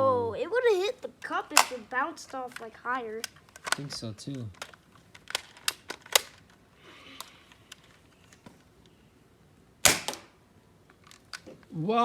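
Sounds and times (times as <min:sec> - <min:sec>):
toy blaster shot: 0:01.5 - 0:01.9, 0:09.9 - 0:10.3
toy blaster clicks: 0:01.5 - 0:03.8.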